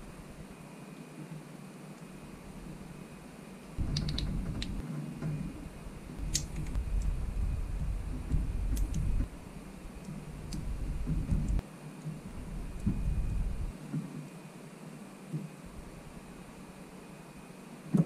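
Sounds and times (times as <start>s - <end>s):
low rumbling handling noise: 3.8s - 11.6s, 12.2s - 13.7s.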